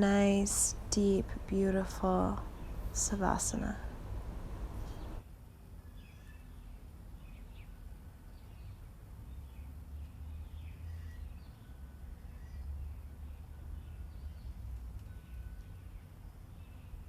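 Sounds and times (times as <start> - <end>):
faint birds chirping: 0.0 - 5.2
steady low rumble: 0.0 - 5.2.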